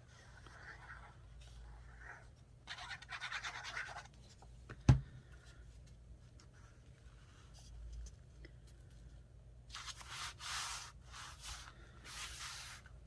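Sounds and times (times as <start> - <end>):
paper being rubbed by hand: 9.8 - 12.9.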